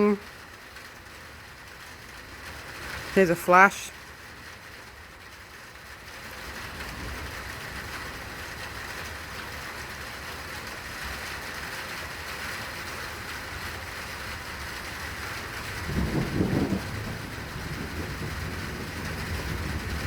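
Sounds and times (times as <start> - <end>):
rolling thunder rumbling: 14.4 - 20.0.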